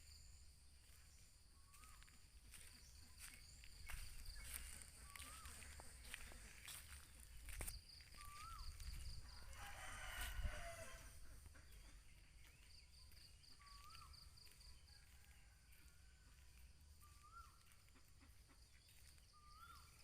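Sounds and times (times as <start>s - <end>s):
small bird call: 1.6s - 15.4s, 17.0s - 20.0s
rooster crowing faintly: 8.2s - 11.3s.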